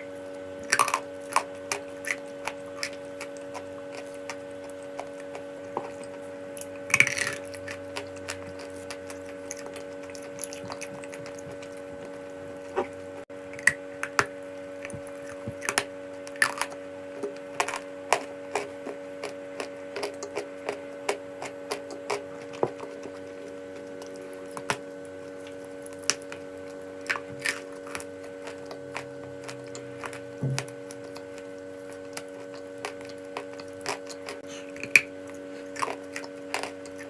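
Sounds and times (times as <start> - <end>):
steady hum: 0.0 - 37.0.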